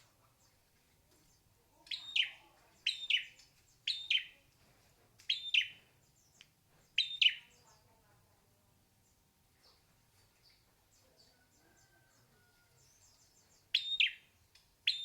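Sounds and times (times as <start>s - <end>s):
bird two-part calls: 1.9s - 4.4s, 5.2s - 5.8s, 7.0s - 7.6s, 13.7s - 15.0s.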